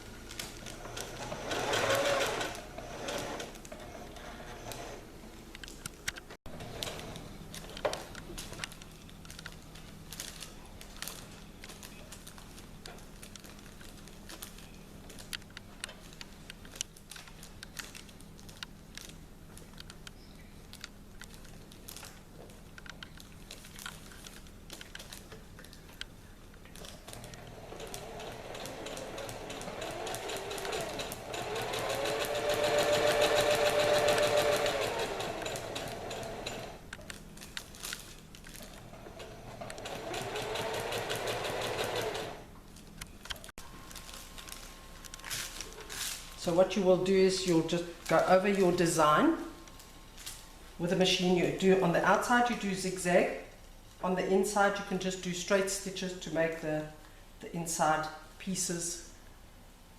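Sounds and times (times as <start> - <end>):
sewing machine stitching: 0.5 - 5.0, 27.0 - 36.8, 38.8 - 42.5.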